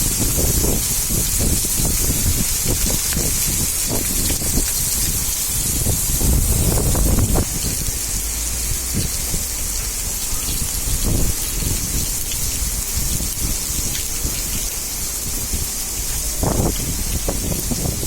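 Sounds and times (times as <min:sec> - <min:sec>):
heavy rain hissing: 0:00.0 - 0:18.0
low rumble: 0:04.7 - 0:12.8.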